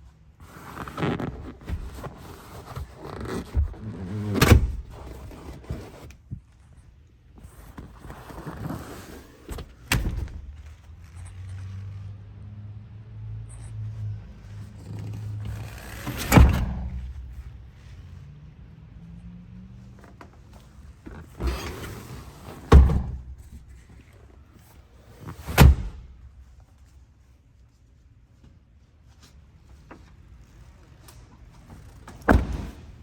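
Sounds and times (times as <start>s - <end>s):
truck door thunks: 22.7s - 23.4s, 25.6s - 26.2s, 32.2s - 33.0s.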